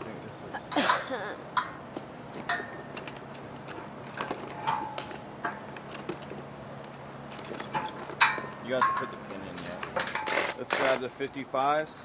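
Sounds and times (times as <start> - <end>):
metal parts clicking and knocking: 7.3 - 11.1.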